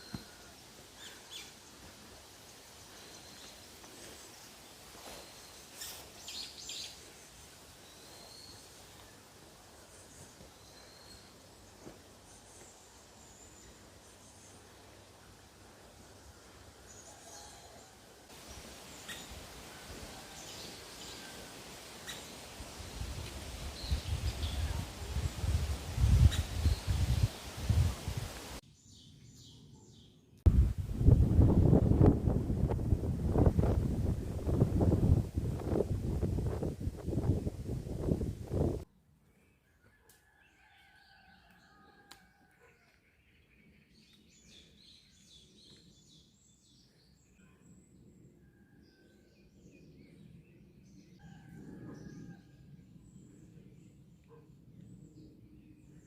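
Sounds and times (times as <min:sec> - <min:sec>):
background hiss: 0:00.0 - 0:28.6
bird calls and chirps: 0:26.2 - 0:27.2.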